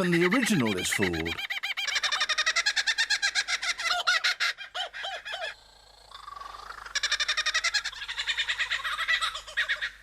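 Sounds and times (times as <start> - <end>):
lyrebird mimicking kookaburra laugh: 0.0 - 5.6, 6.4 - 10.0.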